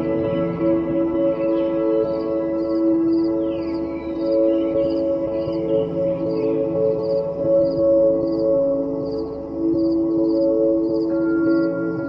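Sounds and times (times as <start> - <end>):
ambient music with ringing tones: 0.0 - 12.0.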